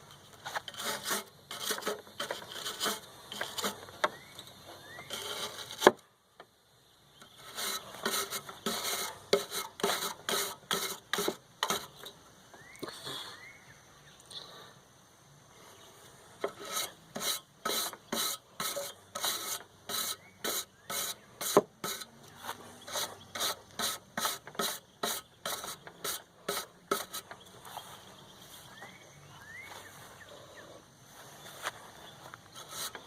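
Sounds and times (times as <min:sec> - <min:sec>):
wire brush scrubbing metal fins: 0:00.6 - 0:03.9, 0:05.0 - 0:05.9, 0:07.4 - 0:12.1, 0:16.4 - 0:22.1, 0:22.8 - 0:27.4, 0:32.6 - 0:33.0.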